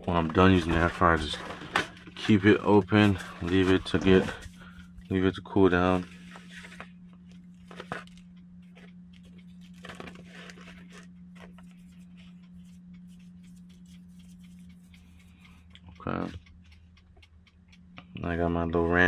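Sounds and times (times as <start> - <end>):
steady low hum: 0.0 - 19.0
faint rustling and crinkling: 6.0 - 14.9.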